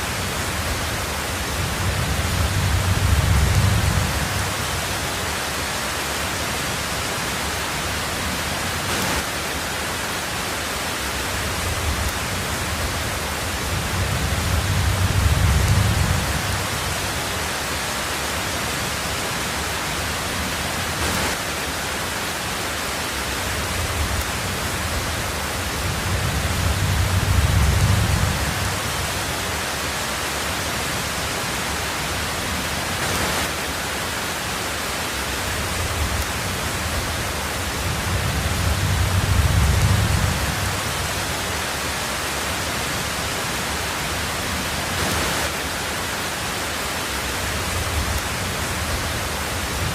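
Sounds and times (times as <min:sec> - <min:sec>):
heavy rain on a tin roof: 0:00.0 - 0:49.9
low rolls of thunder: 0:00.3 - 0:05.0, 0:11.4 - 0:17.2, 0:23.8 - 0:29.2, 0:35.6 - 0:41.6.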